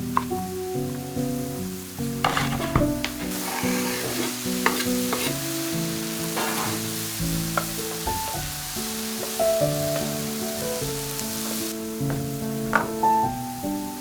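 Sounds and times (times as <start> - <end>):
food sizzling in a pan: 0.0 - 14.0
soft background music: 0.0 - 14.0
utensil stirring clicks and scrapes: 2.2 - 5.5, 6.2 - 6.9.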